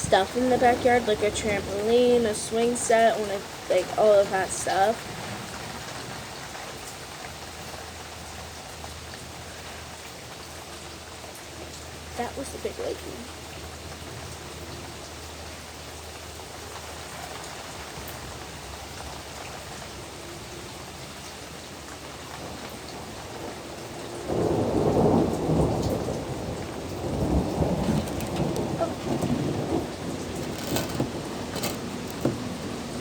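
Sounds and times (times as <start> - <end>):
steady rain falling: 0.0 - 33.0
rolling thunder rumble: 22.4 - 33.0.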